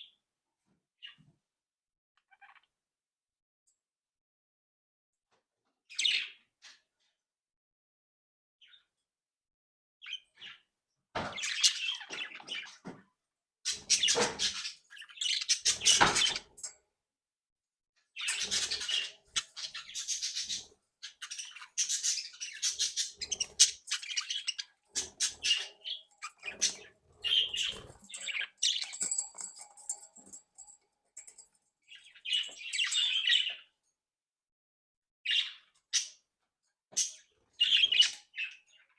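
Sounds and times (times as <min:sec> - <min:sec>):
budgerigars chattering and warbling: 0:11.3 - 0:12.8, 0:13.7 - 0:16.7, 0:18.2 - 0:33.7.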